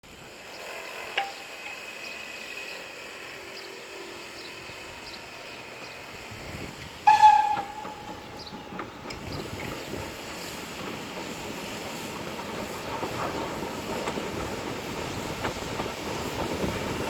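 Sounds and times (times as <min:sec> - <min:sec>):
steam locomotive whistle blast: 0:07.0 - 0:08.6.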